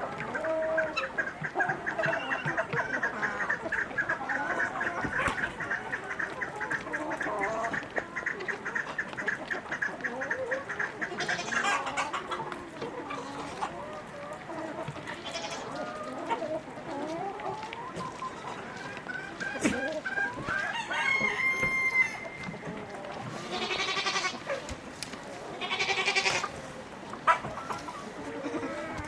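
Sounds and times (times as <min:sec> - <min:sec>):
poultry clucking: 0:00.0 - 0:29.0
rustle: 0:00.0 - 0:29.0
birds calling: 0:00.8 - 0:12.3.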